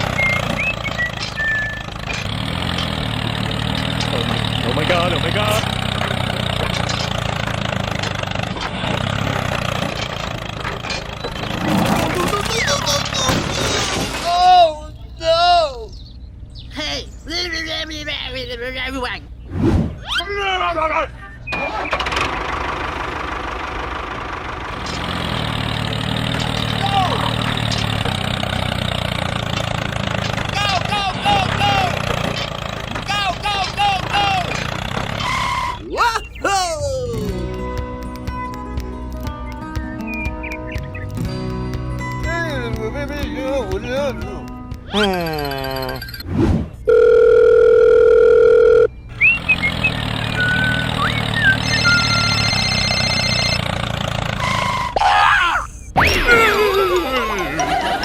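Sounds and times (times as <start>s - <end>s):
low motor hum: 0.0s - 13.0s, 36.8s - 55.0s
small tractor motor running: 0.0s - 13.3s, 21.5s - 35.8s, 46.9s - 55.0s
quick whistling chirps: 0.1s - 1.9s, 49.1s - 52.4s
loud electronic beep: 46.9s - 53.7s.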